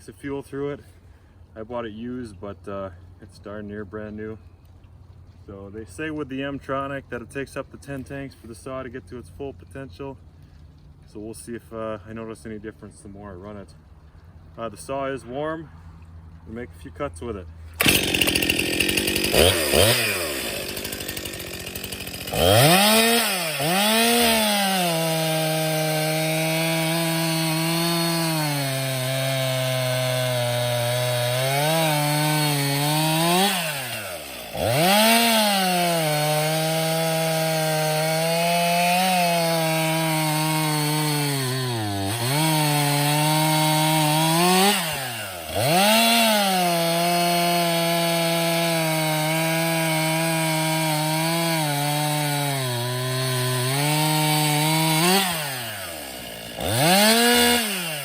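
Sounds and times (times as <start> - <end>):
chainsaw cutting wood: 17.4 - 58.0.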